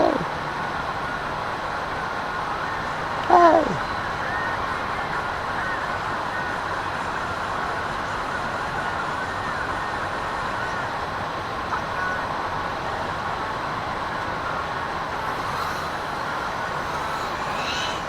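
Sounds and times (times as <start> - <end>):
steady rushing noise: 4.0 - 18.0
quadcopter motors whining: 14.6 - 18.0.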